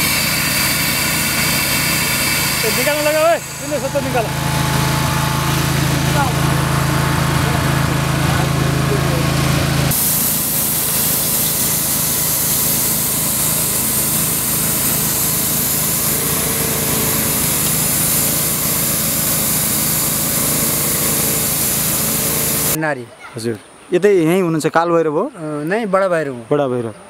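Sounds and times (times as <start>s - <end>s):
hiss: 0.0s - 4.3s, 9.9s - 22.8s
small engine running: 0.0s - 22.8s.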